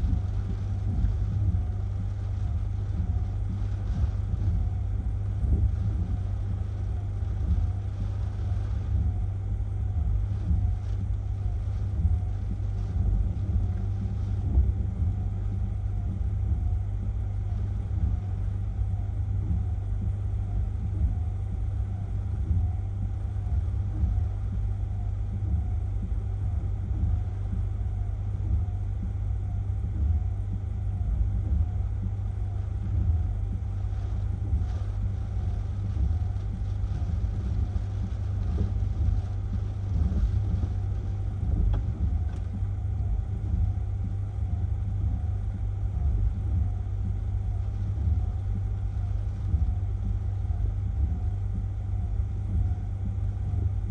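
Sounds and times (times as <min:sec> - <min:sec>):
wind buffeting microphone: 0:00.0 - 0:16.8, 0:32.8 - 0:51.7.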